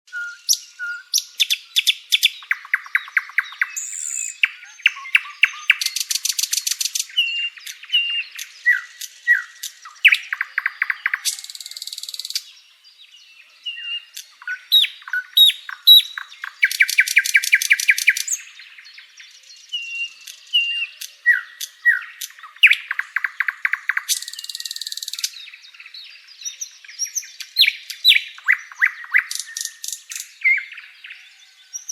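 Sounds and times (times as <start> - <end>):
songbird singing: 0.1 - 31.9
buzzy high bird trill: 14.3 - 18.5.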